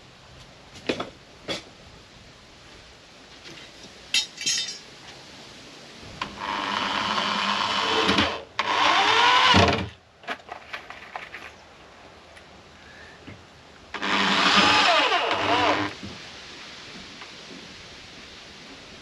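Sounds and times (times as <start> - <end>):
small power tool motor: 6.4 - 9.8, 14.0 - 16.0.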